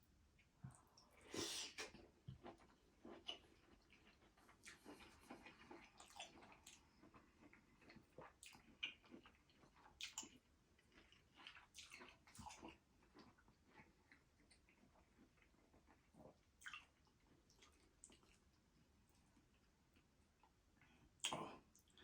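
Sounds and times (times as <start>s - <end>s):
wet chewing sounds: 1.8s - 22.0s.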